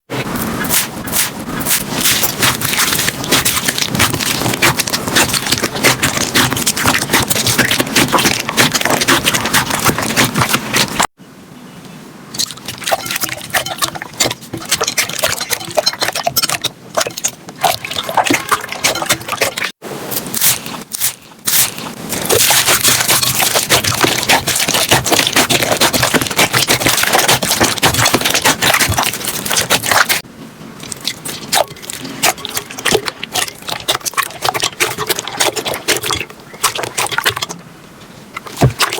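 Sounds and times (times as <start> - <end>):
slime crackling and popping: 0.7 - 11.1, 20.2 - 30.2.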